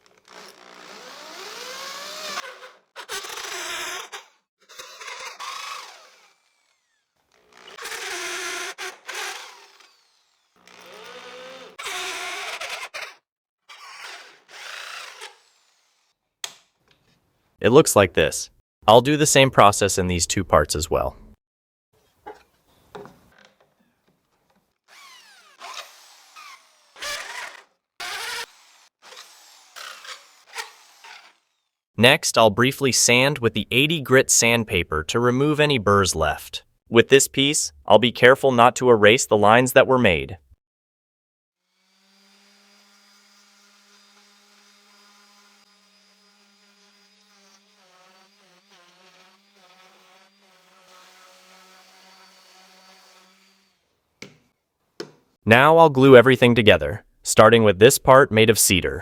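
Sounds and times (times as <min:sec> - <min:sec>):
electric drill cutting wood: 0:00.0 - 0:16.2, 0:24.9 - 0:31.8, 0:41.6 - 0:54.0
power tool motor buzzing: 0:00.0 - 0:16.2, 0:24.9 - 0:31.8, 0:41.7 - 0:53.9.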